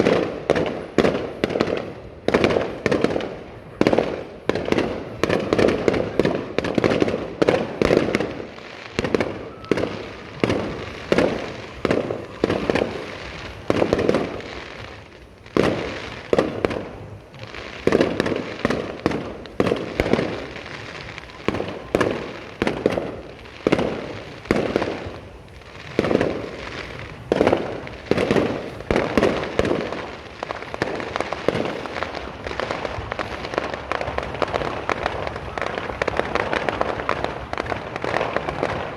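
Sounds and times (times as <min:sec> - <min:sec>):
fireworks bursting: 0:00.0 - 0:38.9
fireworks crackle: 0:00.0 - 0:38.9.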